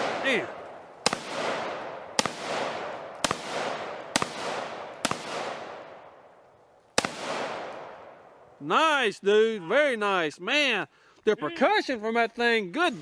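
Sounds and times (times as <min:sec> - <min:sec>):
rifle shots with echo: 0:00.0 - 0:06.4, 0:07.0 - 0:08.5.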